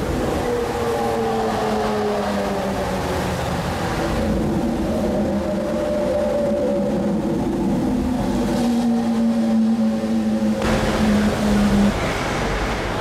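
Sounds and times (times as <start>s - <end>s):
engine running: 9.8s - 13.0s
loud rushing noise: 10.6s - 13.0s.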